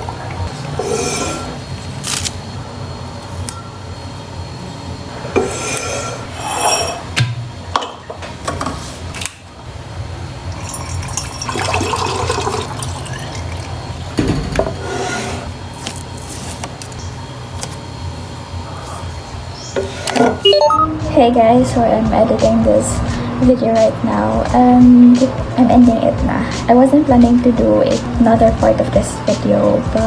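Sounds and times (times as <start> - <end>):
liquid running and splashing: 10.6 - 14.2.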